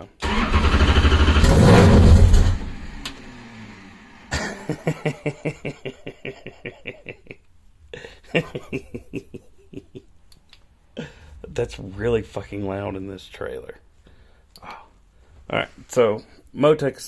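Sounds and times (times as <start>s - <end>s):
race car engine starting: 0.0s - 4.6s
fast short pulses: 0.2s - 4.0s.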